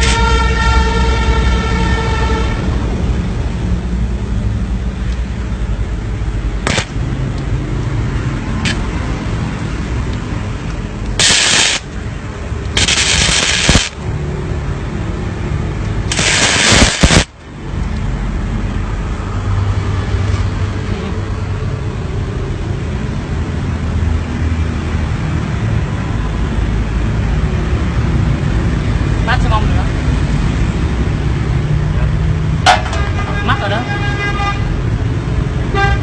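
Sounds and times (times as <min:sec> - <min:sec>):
welder arc crackling: 0:00.0 - 0:00.3, 0:06.6 - 0:07.5, 0:10.7 - 0:14.1, 0:15.8 - 0:17.5.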